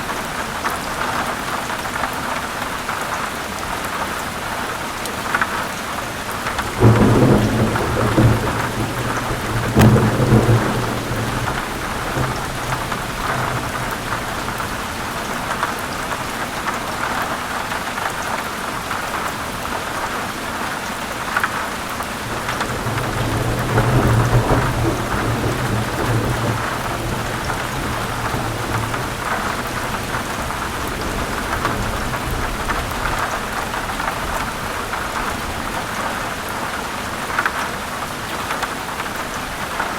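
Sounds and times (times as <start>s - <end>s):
heavy rain falling: 0.0s - 39.9s
thunder rumbling: 6.4s - 16.2s, 22.2s - 35.8s.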